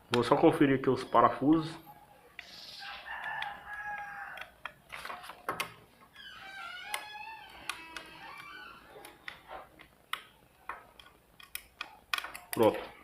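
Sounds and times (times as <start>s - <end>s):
rooster crowing: 2.8s - 4.5s
small handling clicks: 9.0s - 12.8s.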